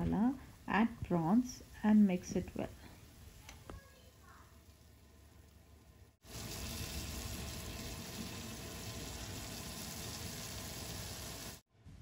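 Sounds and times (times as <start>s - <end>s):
prawns sizzling in hot oil: 3.1s - 11.7s.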